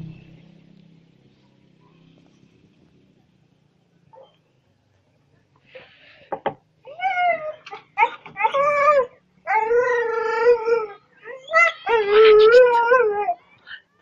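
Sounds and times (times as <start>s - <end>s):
dog howling: 6.9s - 13.4s.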